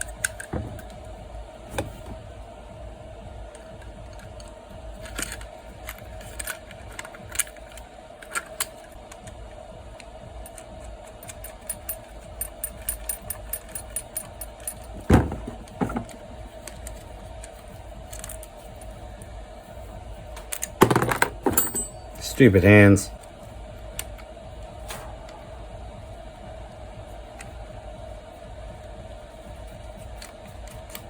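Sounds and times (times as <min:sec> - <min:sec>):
faint steady hum: 0:00.0 - 0:31.0
metal parts clicking and clinking: 0:05.0 - 0:09.0, 0:10.5 - 0:18.6, 0:20.4 - 0:22.5.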